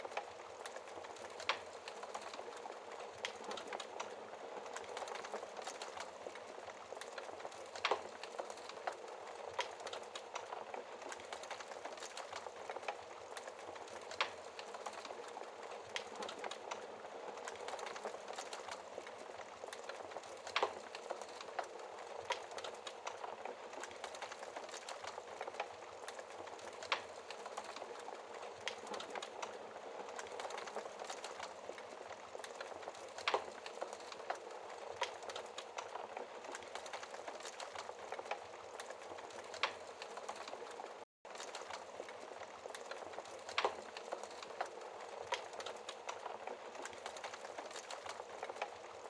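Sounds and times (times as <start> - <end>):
wood fire crackling and popping: 0.0 - 49.0.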